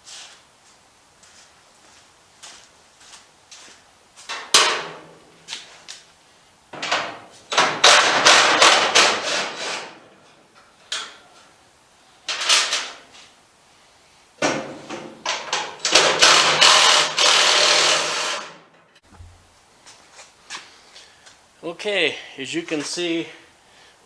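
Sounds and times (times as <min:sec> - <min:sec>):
metal parts clanking and scraping: 0:12.3 - 0:13.0, 0:14.9 - 0:19.0.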